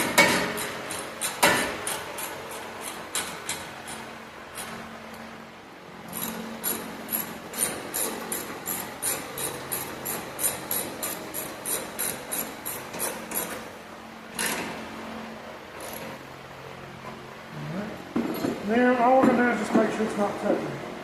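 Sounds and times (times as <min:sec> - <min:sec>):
hand ratchet clicking: 0:06.2 - 0:13.6.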